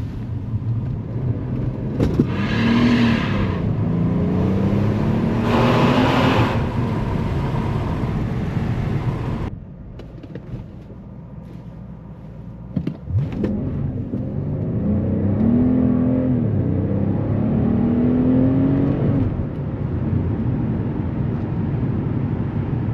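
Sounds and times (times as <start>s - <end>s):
car engine running under load: 3.2s - 15.6s.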